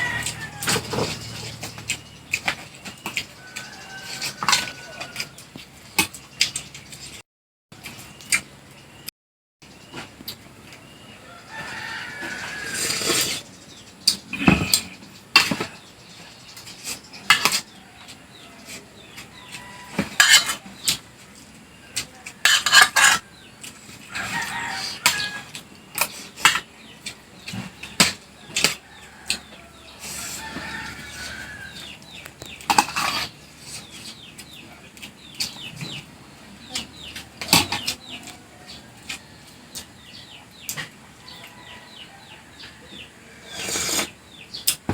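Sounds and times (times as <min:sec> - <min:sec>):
cutlery clinking on a plate: 0:19.9 - 0:21.0, 0:22.4 - 0:23.2.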